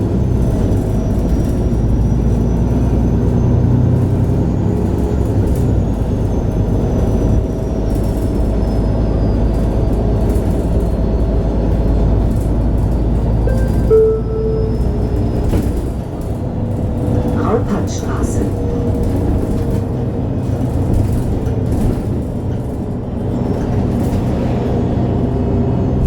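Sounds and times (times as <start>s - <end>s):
bus engine and road rumble: 0.0s - 26.0s
short bright tone: 13.5s - 15.4s.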